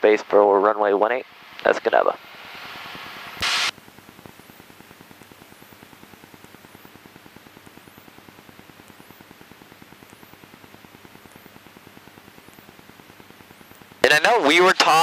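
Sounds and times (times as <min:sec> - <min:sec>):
intercom hiss: 0:03.4 - 0:03.7, 0:14.0 - 0:15.0.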